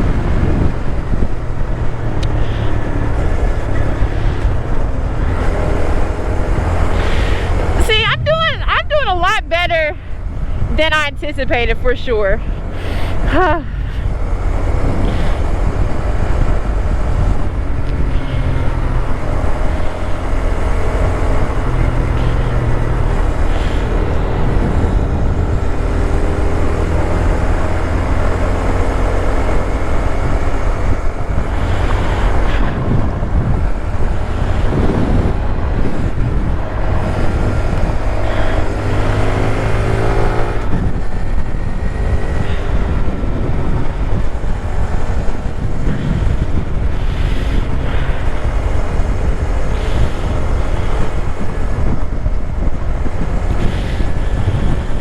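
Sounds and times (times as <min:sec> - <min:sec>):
small motorcycle engine running: 0:00.0 - 0:55.0
wind rush on microphone: 0:00.0 - 0:55.0.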